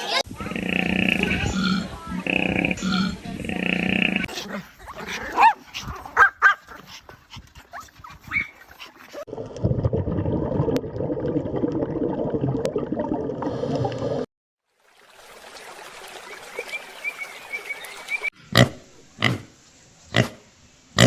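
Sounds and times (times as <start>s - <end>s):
dog yipping and whimpering: 7.7s - 9.2s.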